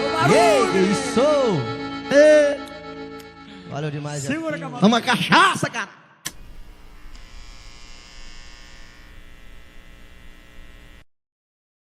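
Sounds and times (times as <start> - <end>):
electrical hum and buzz: 6.3 - 11.1.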